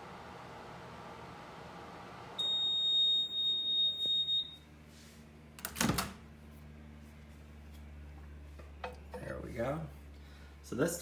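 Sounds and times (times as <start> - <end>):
microwave oven humming: 0.0 - 10.9
long high electronic beep: 2.4 - 4.6.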